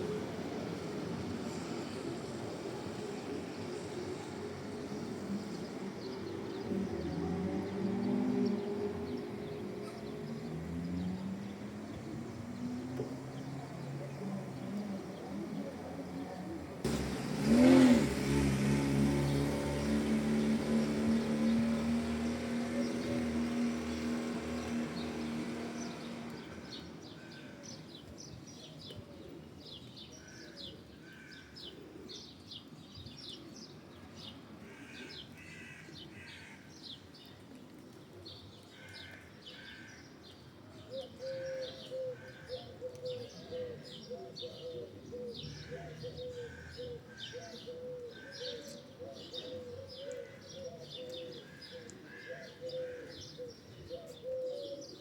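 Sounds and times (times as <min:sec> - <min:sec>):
passing vehicle hum: 0:00.0 - 0:27.2
small birds chirping: 0:19.0 - 0:55.0
low wavering cooing: 0:40.9 - 0:54.9.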